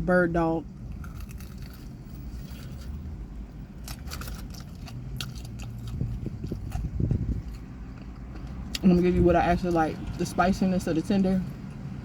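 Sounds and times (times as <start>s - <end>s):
person chewing food: 0.8s - 10.2s.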